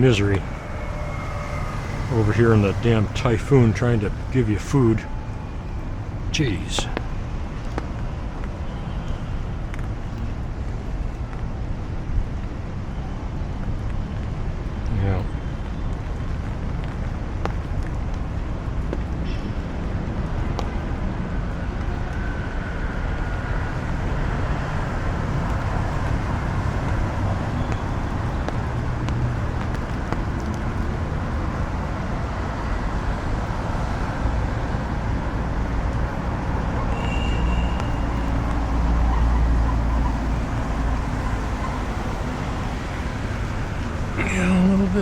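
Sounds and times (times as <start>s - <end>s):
city traffic rumble: 0.0s - 45.0s.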